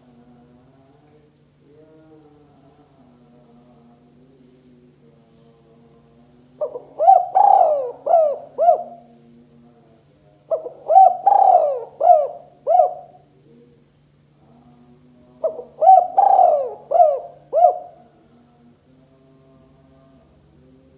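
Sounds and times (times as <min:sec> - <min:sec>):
dove cooing: 0:06.6 - 0:09.1, 0:10.5 - 0:13.2, 0:15.4 - 0:18.0.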